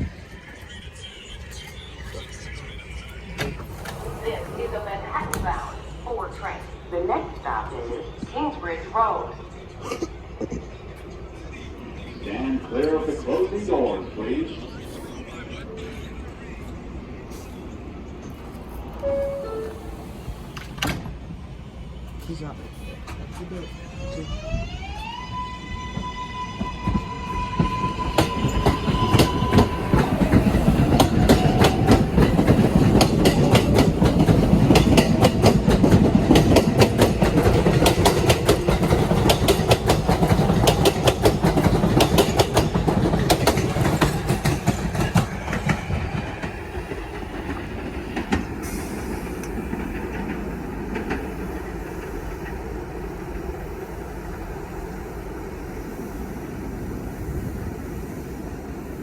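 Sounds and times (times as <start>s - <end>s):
subway train motor whine: 0.0s - 9.8s, 10.7s - 59.0s
wheels clattering over rail joints: 3.3s - 5.8s.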